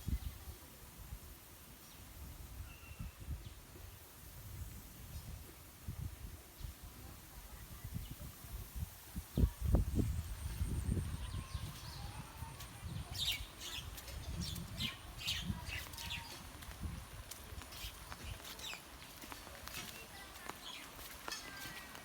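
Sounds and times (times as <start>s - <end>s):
birds chirping: 9.4s - 22.0s.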